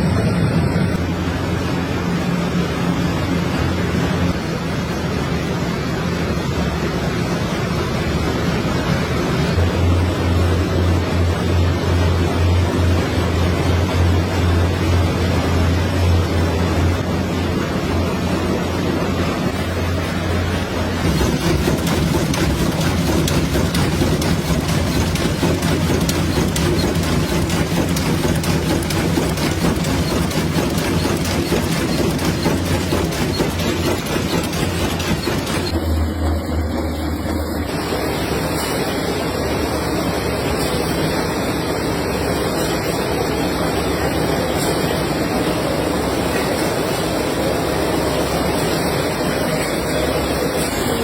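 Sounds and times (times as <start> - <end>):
factory machinery humming: 0.0 - 51.0
rapid machine clatter: 6.0 - 39.0.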